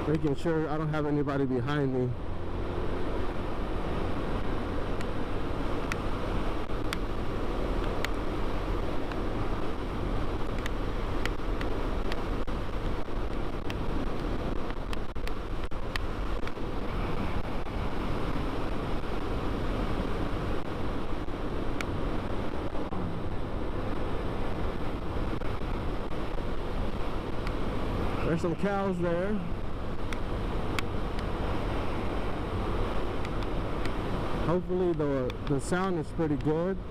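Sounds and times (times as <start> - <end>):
wind rushing over microphone: 0.0 - 36.9.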